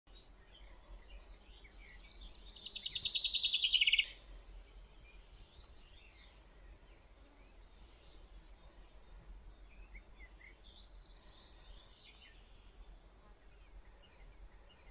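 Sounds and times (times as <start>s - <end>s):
faint bird chirps: 0.2s - 14.9s
songbird trilling: 2.4s - 4.2s.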